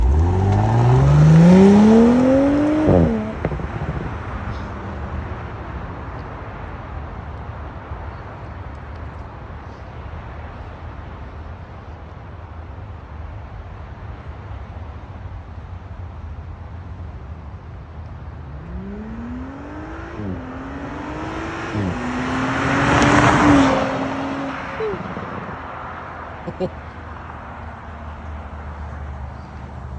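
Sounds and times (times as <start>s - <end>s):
car engine accelerating: 0.0s - 4.5s, 18.1s - 25.8s.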